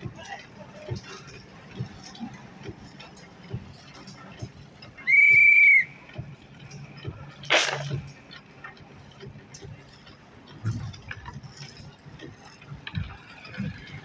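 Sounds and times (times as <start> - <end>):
short hiss: 7.4 - 8.0.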